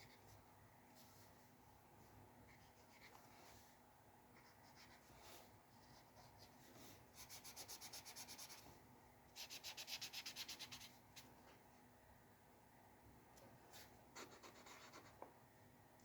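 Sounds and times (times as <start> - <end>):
strokes on paper: 2.4 - 8.8, 9.4 - 11.4, 13.7 - 15.3
rubbing on paper: 4.4 - 8.7, 9.4 - 11.0.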